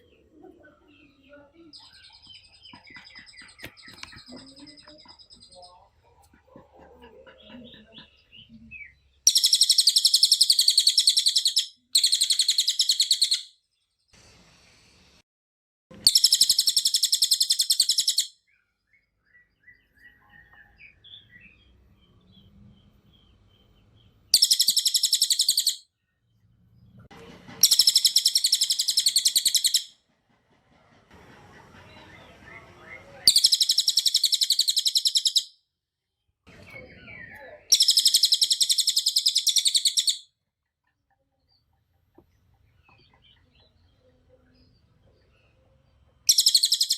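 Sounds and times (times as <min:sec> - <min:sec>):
songbird chattering trills: 0:00.0 - 0:13.5, 0:16.0 - 0:18.3, 0:19.7 - 0:25.8, 0:27.6 - 0:29.9, 0:31.7 - 0:35.5, 0:36.5 - 0:40.2, 0:46.2 - 0:46.9
soft bird chirps: 0:00.0 - 0:15.0, 0:16.0 - 0:29.8, 0:31.8 - 0:35.5, 0:36.1 - 0:46.9.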